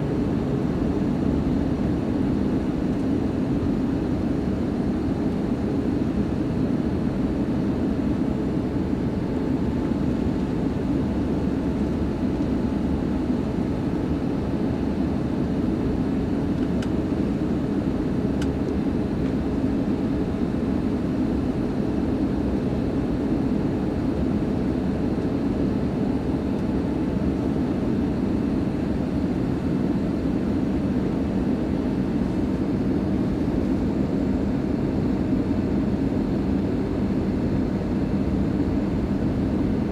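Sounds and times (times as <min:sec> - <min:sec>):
airplane cabin drone: 0:00.0 - 0:39.9.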